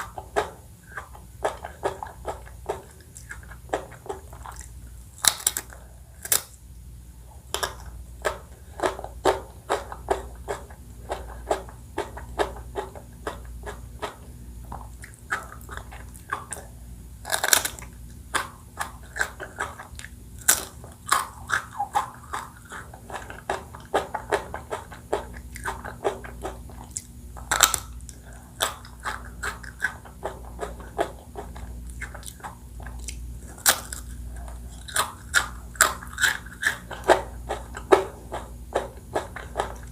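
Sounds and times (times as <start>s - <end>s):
wet chewing and crunching: 0.0s - 6.6s, 7.4s - 39.9s.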